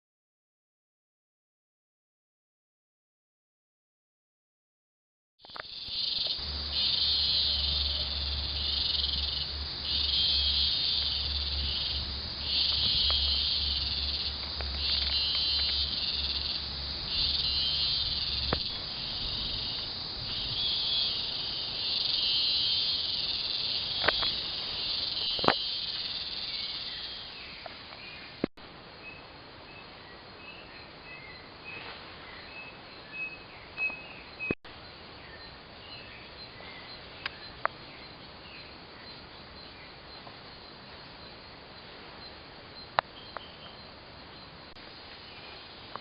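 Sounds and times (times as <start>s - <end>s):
insects shrilling: 5.4s - 27.5s.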